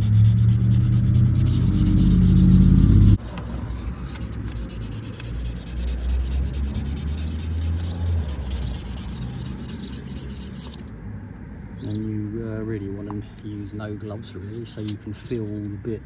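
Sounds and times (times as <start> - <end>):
wet sandpaper rubbing: 0.0 - 10.9, 14.4 - 15.6.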